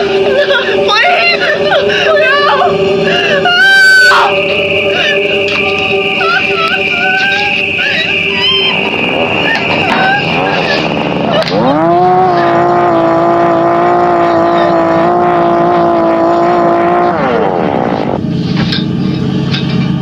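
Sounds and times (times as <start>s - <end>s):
chainsaw engine revving: 11.7s - 17.4s.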